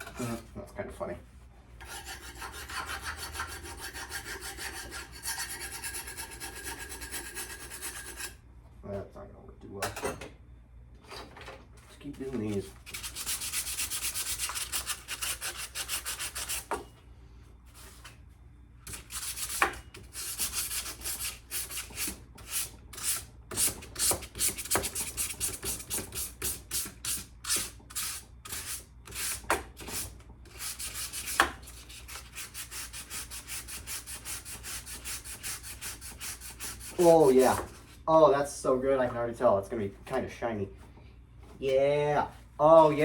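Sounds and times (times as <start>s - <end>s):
sandpaper rubbing on metal: 1.9s - 8.4s, 12.8s - 16.7s, 18.9s - 37.6s.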